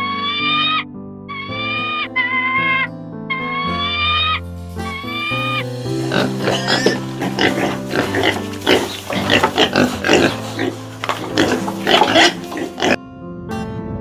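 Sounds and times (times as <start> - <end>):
background music with held notes: 0.0 - 14.0
pig grunting: 4.9 - 13.0.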